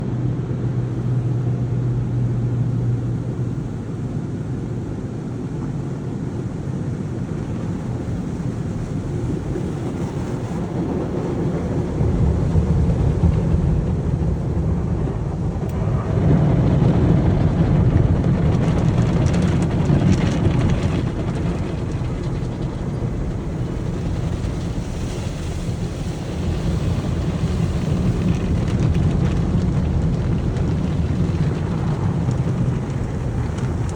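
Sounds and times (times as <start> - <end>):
car wash equipment rumbling: 0.0 - 33.9
hissing water spray: 18.2 - 33.9.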